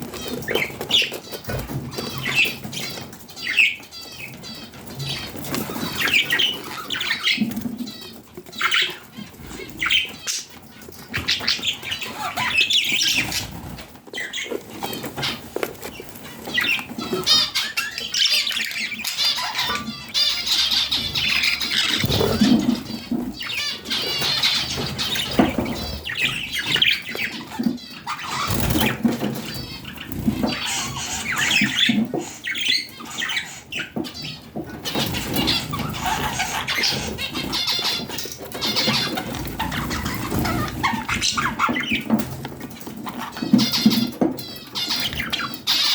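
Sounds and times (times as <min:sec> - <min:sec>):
budgerigars chattering: 0:00.0 - 0:45.9
wing flapping: 0:21.8 - 0:23.5.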